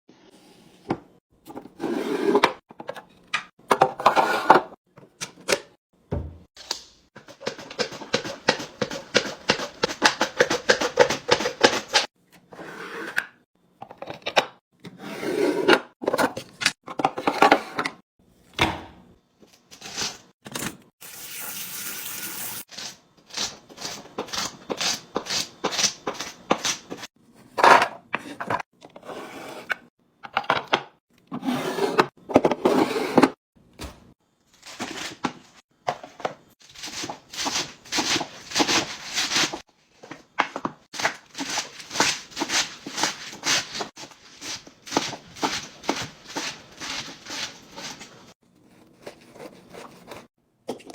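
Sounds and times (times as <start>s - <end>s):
containers handled and set down: 0.8s - 12.1s, 33.2s - 48.2s
packaging rustling: 34.5s - 49.6s.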